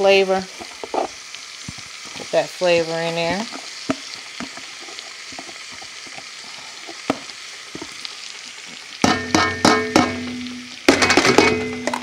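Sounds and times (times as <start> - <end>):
food sizzling in a skillet: 0.0 - 12.0
ringing knocks: 9.0 - 10.2.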